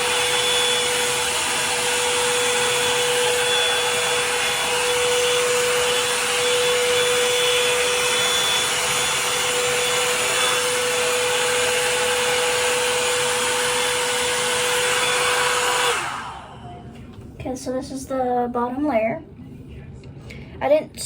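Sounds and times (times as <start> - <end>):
hot-air brush fan whining: 0.0 - 18.7.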